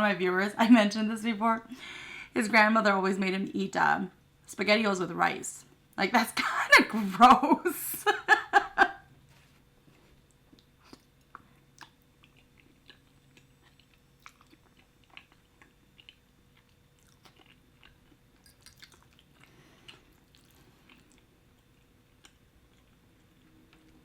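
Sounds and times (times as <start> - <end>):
close-miked chewing: 10.2 - 24.0.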